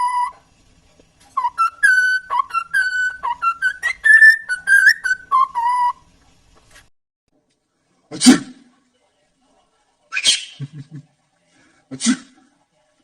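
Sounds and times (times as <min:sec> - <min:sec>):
parrot whistling a tune: 0:00.0 - 0:00.4, 0:01.3 - 0:06.1, 0:10.1 - 0:10.6.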